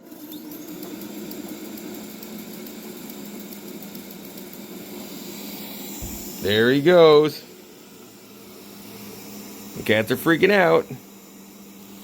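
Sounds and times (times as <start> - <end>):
robot vacuum humming: 3.4 - 12.0.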